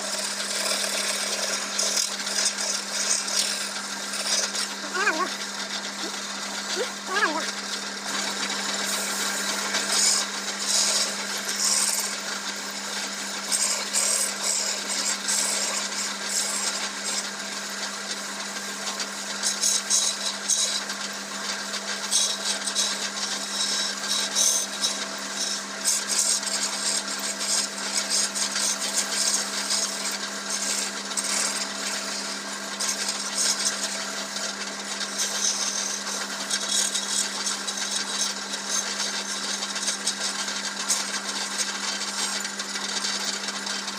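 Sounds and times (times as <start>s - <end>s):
turning tool scraping wood: 0.0s - 17.5s, 18.8s - 43.9s
wood lathe motor humming: 0.0s - 43.9s.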